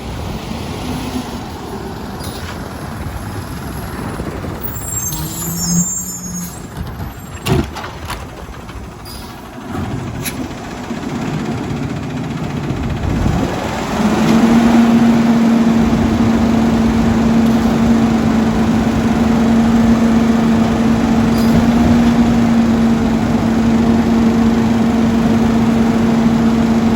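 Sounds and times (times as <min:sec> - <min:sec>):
garbage truck engine whine: 0:00.0 - 0:26.9.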